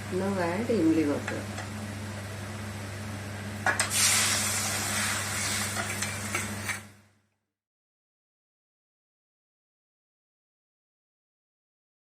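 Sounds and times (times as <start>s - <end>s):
loud sizzle in a hot pan: 3.7s - 6.9s.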